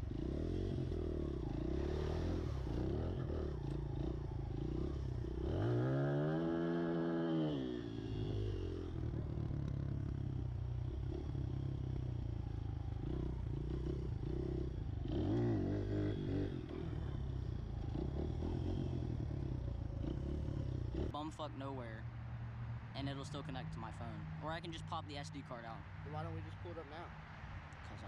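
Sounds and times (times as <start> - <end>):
pit bike engine idling: 8.0 - 21.2.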